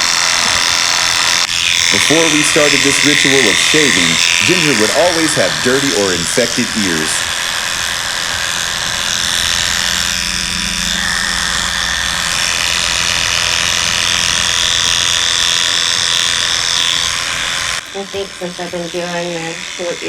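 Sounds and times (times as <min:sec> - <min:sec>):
electric clippers running: 0:00.0 - 0:20.0.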